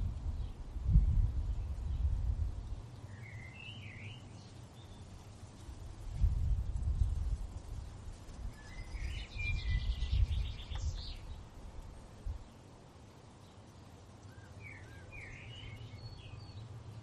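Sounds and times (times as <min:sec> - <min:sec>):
low wind rumble: 0:00.0 - 0:17.0
songbird chirping: 0:00.3 - 0:06.2, 0:06.8 - 0:17.0.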